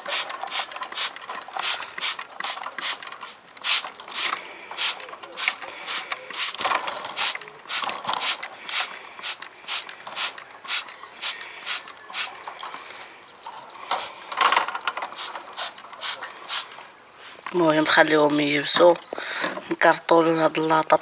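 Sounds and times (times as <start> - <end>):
spray bottle squirting: 0.0 - 12.5, 13.9 - 14.3, 15.1 - 17.5.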